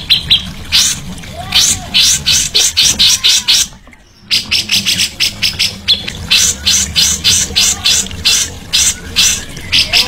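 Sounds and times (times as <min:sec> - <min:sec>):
songbird harsh chattering: 0:04.3 - 0:10.0.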